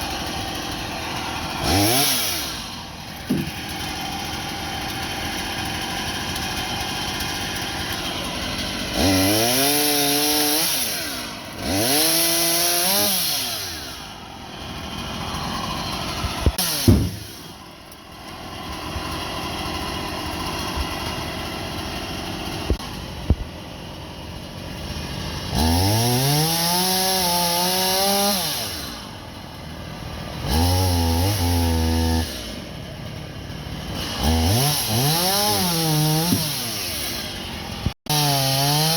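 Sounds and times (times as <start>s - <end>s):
chainsaw cutting wood: 0.0s - 38.9s
sharp knocks: 3.3s - 3.7s, 16.7s - 17.5s, 36.2s - 36.6s.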